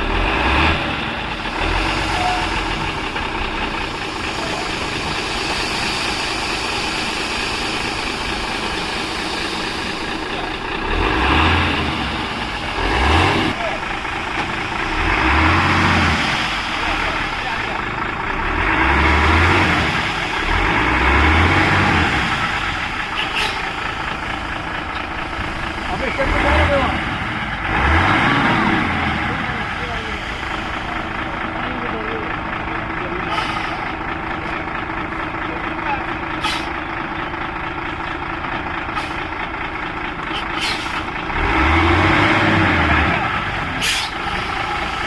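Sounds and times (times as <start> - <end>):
heavy diesel engine running: 0.0 - 45.0
short hisses: 43.8 - 44.2.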